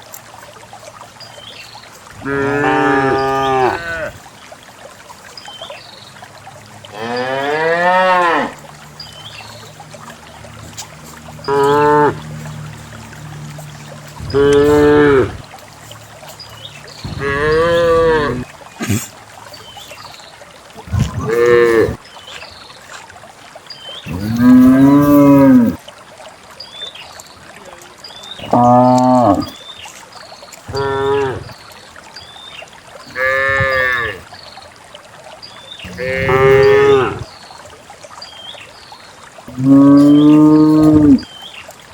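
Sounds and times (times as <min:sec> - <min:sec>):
cows mooing: 0:02.2 - 0:04.2, 0:06.9 - 0:08.6, 0:11.5 - 0:12.3, 0:14.2 - 0:15.4, 0:17.1 - 0:18.5, 0:20.8 - 0:22.0, 0:24.1 - 0:25.8, 0:28.4 - 0:29.5, 0:30.7 - 0:31.5, 0:33.1 - 0:34.2, 0:35.8 - 0:37.2, 0:39.5 - 0:41.2.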